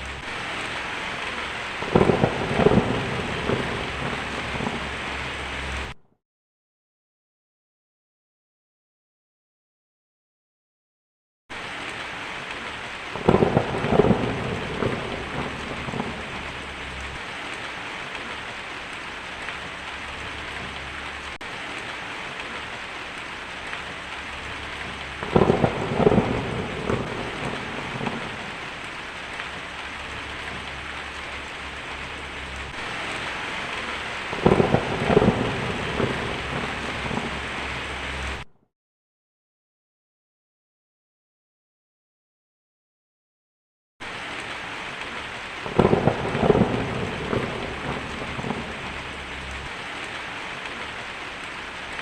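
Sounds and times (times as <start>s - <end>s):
heavy rain: 0.0s - 6.0s, 11.5s - 38.5s, 44.0s - 52.0s
thunder rumbling: 0.0s - 6.0s, 13.0s - 38.5s, 45.6s - 51.1s.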